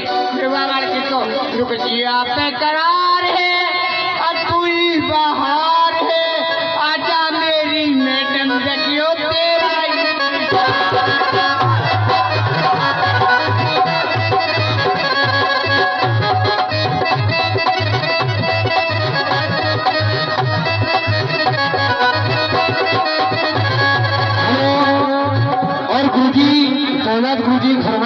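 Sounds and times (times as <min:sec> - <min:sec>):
held folk melody: 0:08.0 - 0:27.9
steady drum beat: 0:10.6 - 0:24.6.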